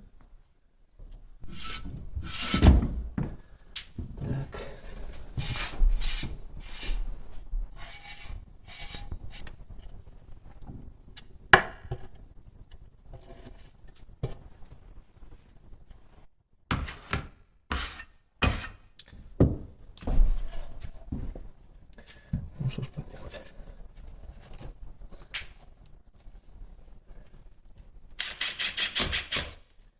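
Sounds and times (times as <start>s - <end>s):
scraping and rubbing: 1.4s - 2.8s, 5.0s - 7.1s, 7.7s - 10.0s.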